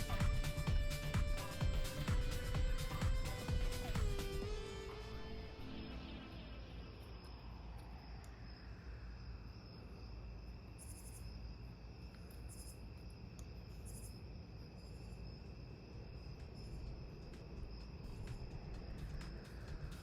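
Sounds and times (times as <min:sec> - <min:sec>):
steady low rumble: 0:00.0 - 0:10.7, 0:15.4 - 0:20.0
faint crickets chirping: 0:00.0 - 0:20.0.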